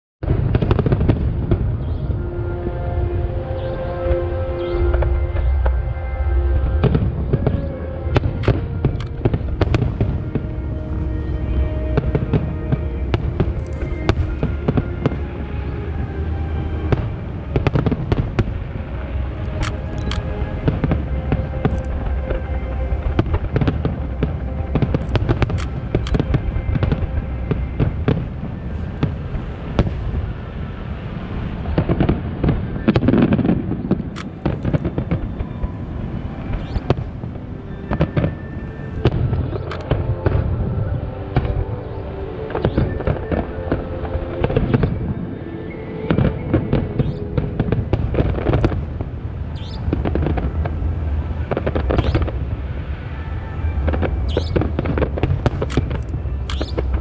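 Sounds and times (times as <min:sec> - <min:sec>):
fireworks bursting: 0:00.2 - 0:02.2, 0:04.5 - 0:57.0
music playing: 0:00.3 - 0:57.0.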